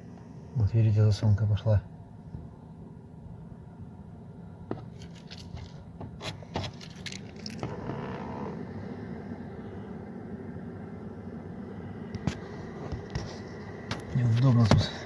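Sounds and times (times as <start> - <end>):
clicks and scraping under dashboard: 4.7 - 8.7, 12.2 - 15.0
servo and blower whirring: 7.5 - 15.0.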